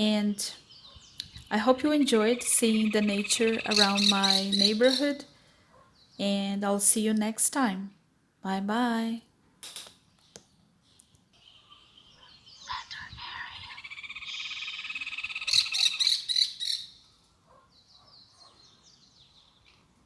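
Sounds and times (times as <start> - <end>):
frogs calling: 1.4 - 5.2, 11.4 - 17.0
faint chirps: 11.0 - 16.8.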